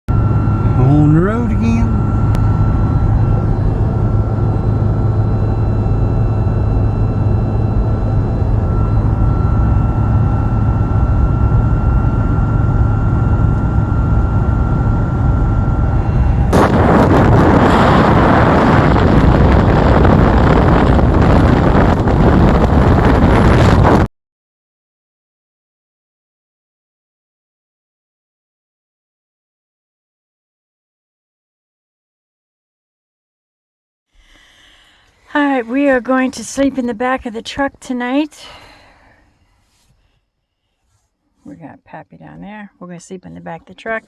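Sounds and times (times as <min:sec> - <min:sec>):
faint steady whine: 0:00.1 - 0:24.1, 0:34.2 - 0:44.0
loud rushing noise: 0:16.0 - 0:24.1.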